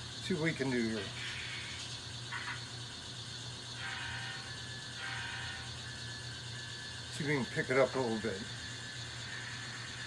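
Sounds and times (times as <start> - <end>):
model locomotive running: 0.0 - 1.6, 3.7 - 10.0
thin motor whine: 0.0 - 10.0.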